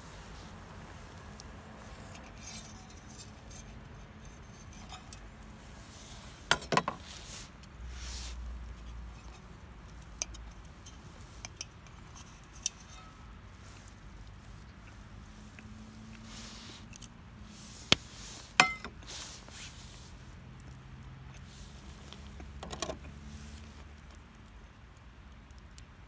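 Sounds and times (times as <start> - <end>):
small hard objects clinking: 18.3 - 19.2.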